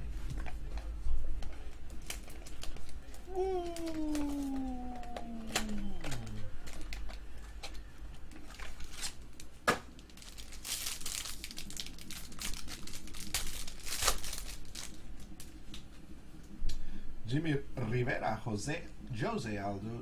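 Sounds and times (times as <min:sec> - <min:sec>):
plastic packaging crinkling and tearing: 0:01.9 - 0:15.8
cards clicking: 0:03.6 - 0:07.8.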